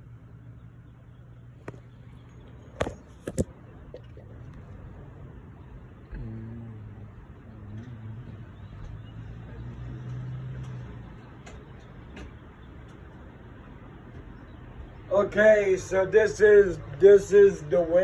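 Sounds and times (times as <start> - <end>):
vehicle engine droning: 0.0 - 18.0.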